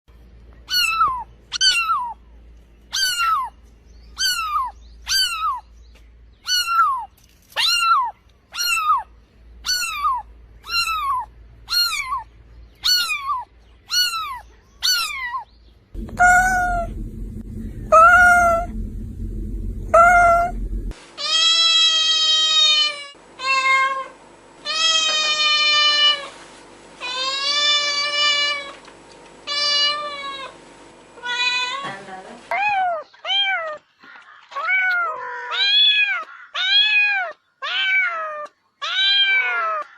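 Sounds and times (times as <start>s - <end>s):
low hum: 15.9s - 21.1s
cats meowing: 34.5s - 39.9s.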